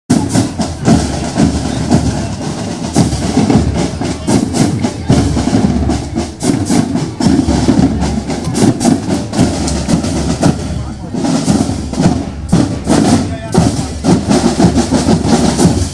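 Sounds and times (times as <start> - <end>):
marching snare and bass drums: 0.1 - 15.9.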